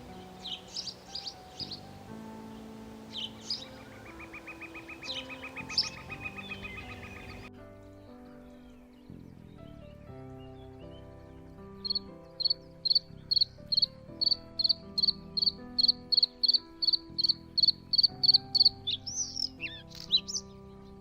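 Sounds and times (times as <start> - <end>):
swooping whistled bird calls: 0.0 - 7.5, 11.8 - 20.6
soft background music: 0.0 - 21.0.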